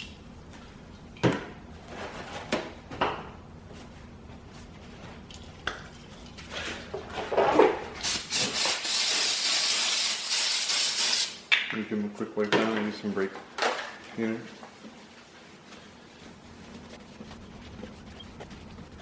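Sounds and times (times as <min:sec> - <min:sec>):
aerosol can spraying hiss: 0:08.0 - 0:11.4.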